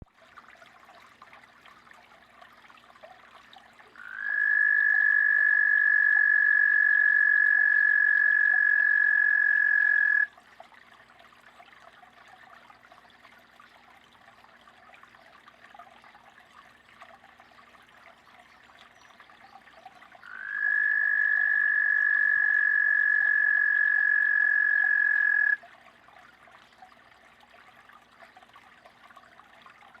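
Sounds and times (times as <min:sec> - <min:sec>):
frog calling: 0:04.0 - 0:10.3, 0:20.2 - 0:25.6.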